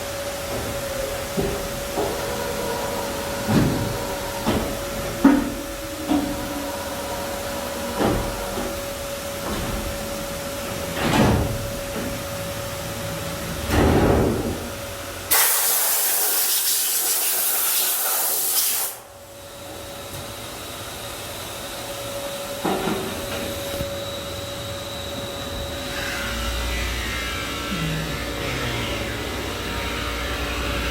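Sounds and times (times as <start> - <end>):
grinding machine humming: 0.0 - 13.7, 19.4 - 30.9
loud hiss: 15.3 - 19.0.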